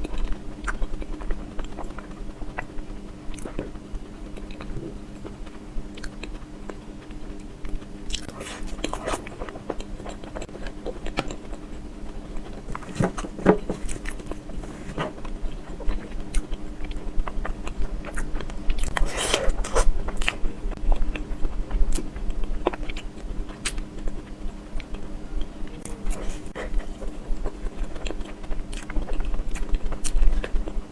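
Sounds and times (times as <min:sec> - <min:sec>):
wet chewing and mouth smacks: 0:00.0 - 0:12.9
faint low hum: 0:00.0 - 0:30.9.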